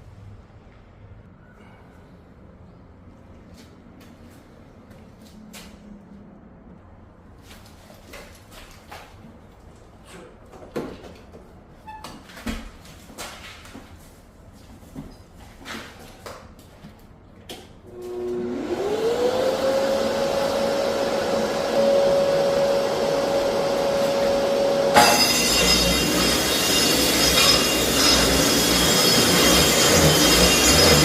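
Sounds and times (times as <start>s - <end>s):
dust extractor motor whine: 17.9s - 31.0s
loud rough noise with high whine: 20.0s - 31.0s.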